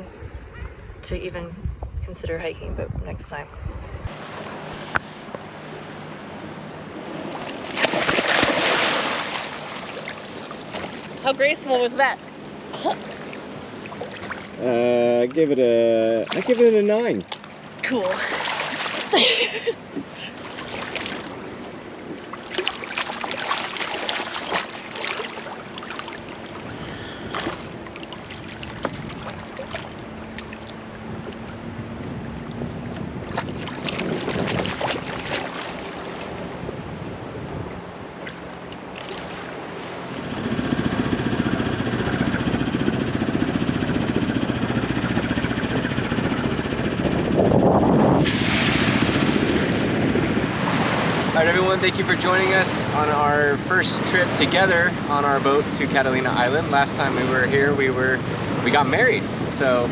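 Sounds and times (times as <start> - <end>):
wind on microphone: 0.0 - 5.0, 28.7 - 29.6, 31.0 - 35.6, 40.2 - 53.1
low steady hum: 0.0 - 7.8
waves: 0.0 - 59.9
small splashes and knocks: 7.4 - 11.2, 16.2 - 17.6, 22.1 - 26.4, 27.3 - 31.6, 32.7 - 36.4.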